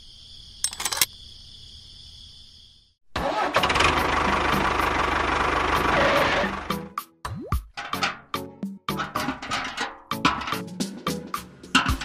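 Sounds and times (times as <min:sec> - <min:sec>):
insect chirring: 0:00.0 - 0:03.0
small engine running: 0:03.2 - 0:06.7.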